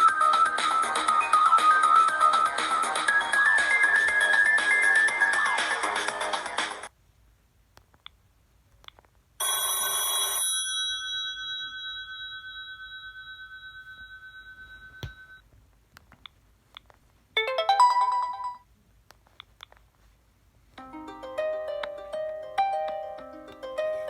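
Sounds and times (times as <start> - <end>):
electronic phone ringing tone: 9.4 - 11.3.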